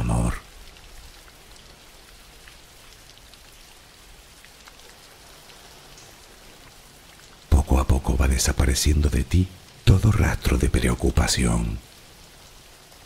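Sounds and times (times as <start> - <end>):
steady rain falling: 0.0 - 13.0
single raindrop ticks: 4.4 - 7.4.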